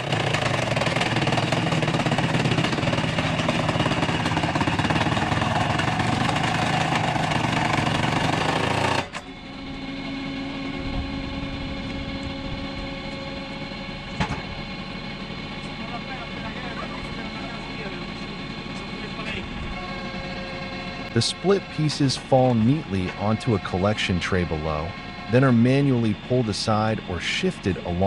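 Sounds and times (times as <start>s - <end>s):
log splitter engine running: 0.0s - 28.0s.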